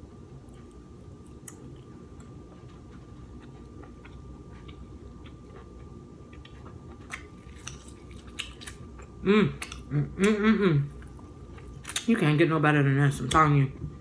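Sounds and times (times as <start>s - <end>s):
soft chewing: 0.0s - 12.2s
steady low hum: 0.0s - 14.0s.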